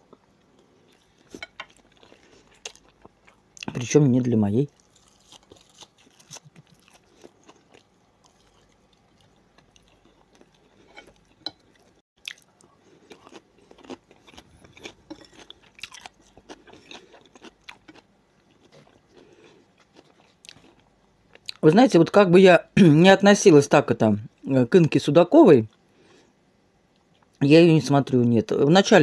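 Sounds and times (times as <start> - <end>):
person chewing food: 0.0 - 3.7, 4.7 - 21.6.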